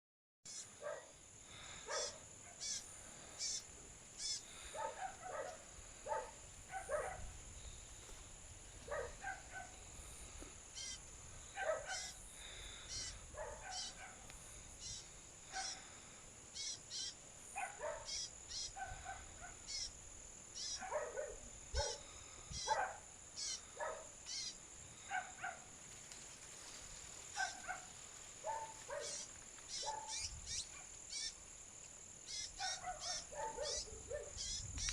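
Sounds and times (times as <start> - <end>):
songbird calling: 0.5 - 0.8, 1.5 - 5.2, 10.7 - 17.2, 17.8 - 20.9, 21.8 - 22.8, 23.4 - 24.6, 28.5 - 31.4, 32.2 - 34.9.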